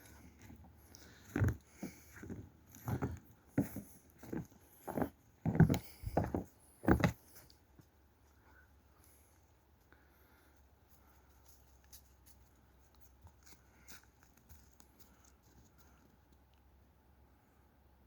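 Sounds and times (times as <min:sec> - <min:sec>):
uneven footsteps: 0:00.0 - 0:08.4.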